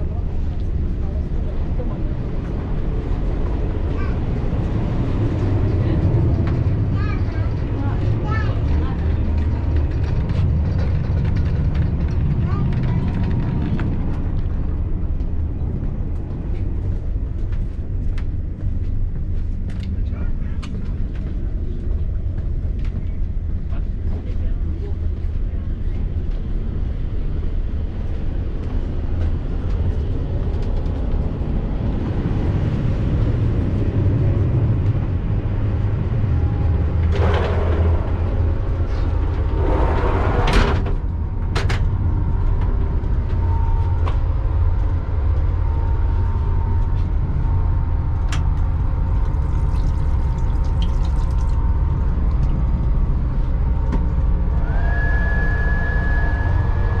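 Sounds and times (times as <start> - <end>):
train rumble: 0.0 - 57.0
steady high tone: 52.6 - 57.0.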